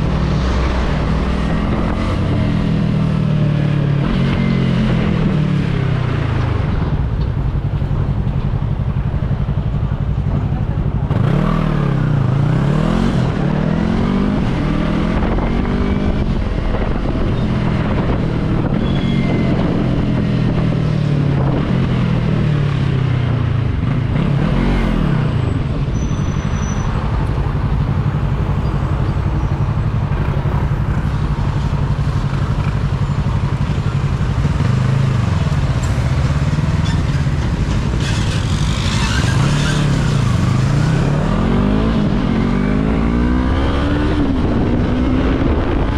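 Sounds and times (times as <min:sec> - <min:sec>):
rushing wind: 0:00.0 - 0:45.9
motorcycle engine running: 0:25.5 - 0:39.1.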